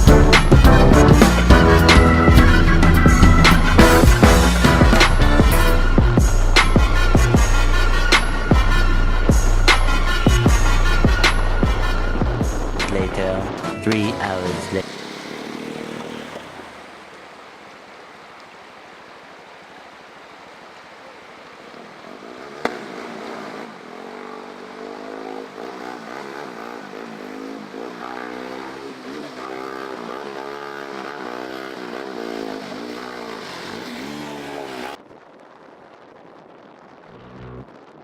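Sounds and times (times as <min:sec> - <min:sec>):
motorcycle engine revving: 0:00.0 - 0:13.6, 0:14.2 - 0:17.0, 0:21.7 - 0:35.0
road noise: 0:00.0 - 0:38.0.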